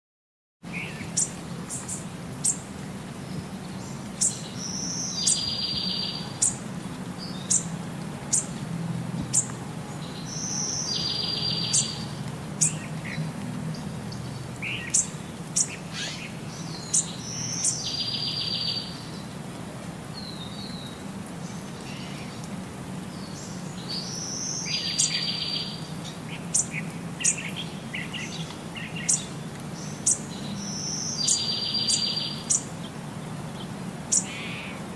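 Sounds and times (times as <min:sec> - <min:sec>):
small birds chirping: 0:00.6 - 0:08.6, 0:09.2 - 0:34.9.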